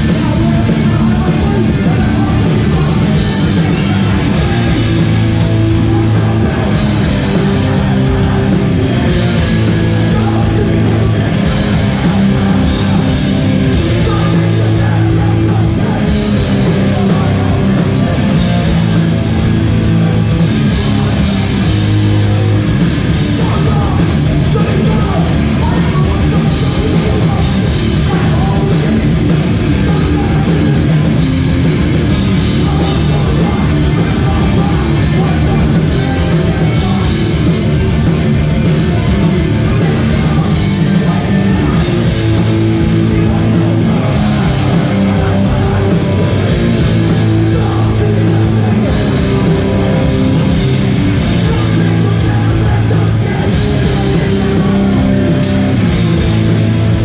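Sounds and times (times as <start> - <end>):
shouted vocals: 0.0 - 21.7
hardcore band playing live: 0.0 - 57.0.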